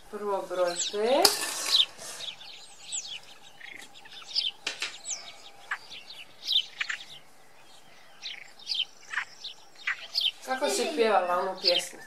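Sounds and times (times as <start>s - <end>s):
small birds chirping: 0.0s - 12.0s
sharp clicks: 3.6s - 5.8s.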